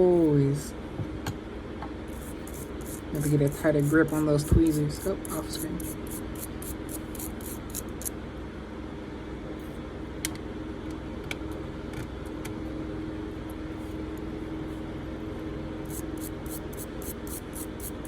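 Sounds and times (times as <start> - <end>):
steady background hum: 0.0 - 18.0
brass brush scrubbing metal: 15.9 - 18.0.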